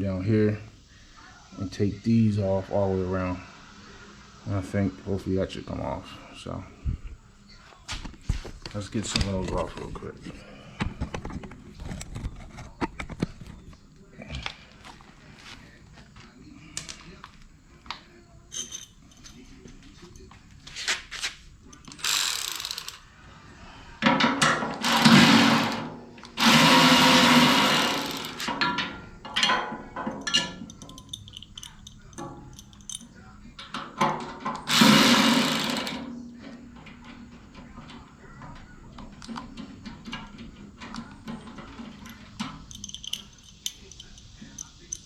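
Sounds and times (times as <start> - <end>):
screws and tools clicking: 21.8 - 23.0, 24.8 - 28.5, 34.6 - 36.0, 42.7 - 45.0
power drill running: 22.0 - 23.0, 24.8 - 28.5, 34.7 - 36.0.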